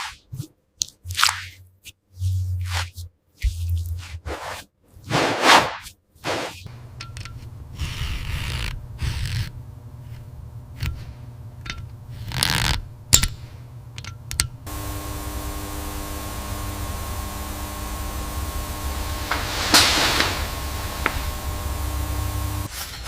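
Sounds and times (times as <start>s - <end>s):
tool scraping and rubbing: 3.9s - 11.2s, 14.7s - 22.7s
steady hum: 6.6s - 22.7s.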